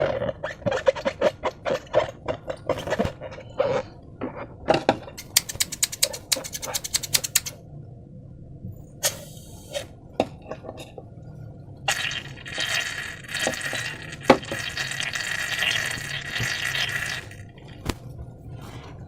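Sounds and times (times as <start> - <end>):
series of sharp clicks: 5.2 - 7.6.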